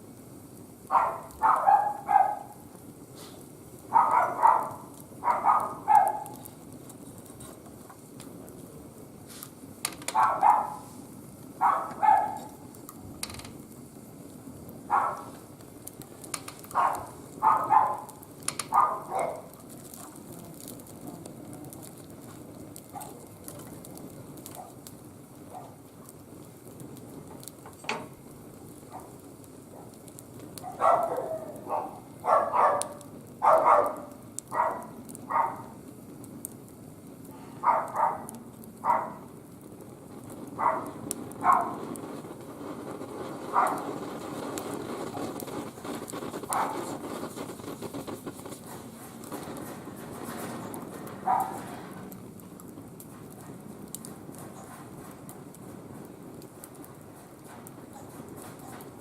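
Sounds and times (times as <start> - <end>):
wood fire crackling: 0.0 - 59.0
dog barking: 0.9 - 2.6, 3.9 - 6.4, 10.1 - 10.8, 11.6 - 12.6, 14.9 - 15.3, 16.7 - 20.1, 22.9 - 23.2, 24.6 - 24.8, 25.5 - 25.8, 28.9 - 29.2, 30.6 - 35.7, 37.6 - 39.3, 40.6 - 41.8, 43.5 - 43.9, 46.5 - 46.9, 51.2 - 51.6.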